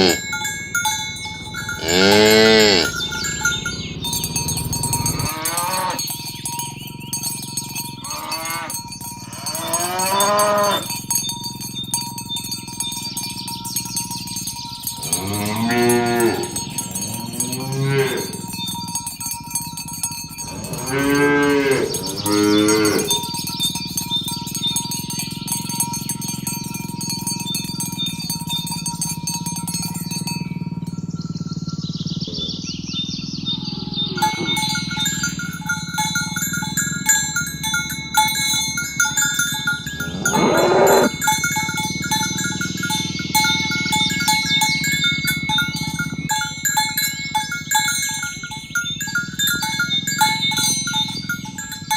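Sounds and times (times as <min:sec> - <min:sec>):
cattle mooing: 0:00.0 - 0:00.5, 0:01.4 - 0:06.1, 0:08.0 - 0:10.9, 0:15.0 - 0:18.6, 0:20.4 - 0:23.5, 0:39.9 - 0:41.4
bell-like chiming notes: 0:00.0 - 0:51.9.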